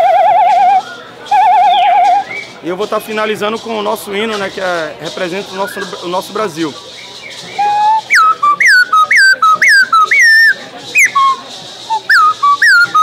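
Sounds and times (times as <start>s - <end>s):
whistled call with sliding notes: 0.0s - 2.6s, 7.0s - 13.0s.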